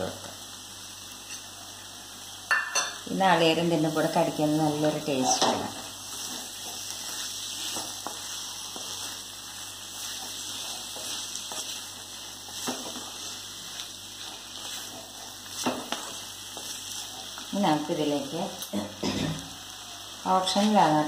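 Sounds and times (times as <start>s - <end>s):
chicken sizzling in a pan: 0.0s - 21.0s
spatula scraping and knocking pan: 5.2s - 9.2s, 9.9s - 17.4s.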